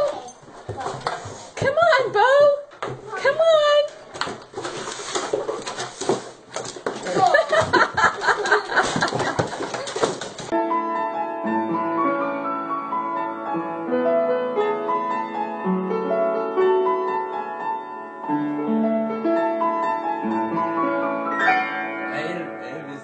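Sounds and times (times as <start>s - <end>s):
piano music: 10.5s - 23.0s.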